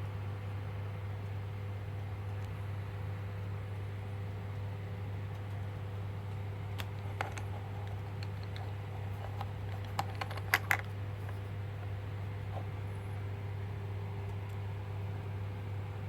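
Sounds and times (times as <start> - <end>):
steady low hum: 0.0 - 16.0
light clicks and taps: 6.3 - 11.9.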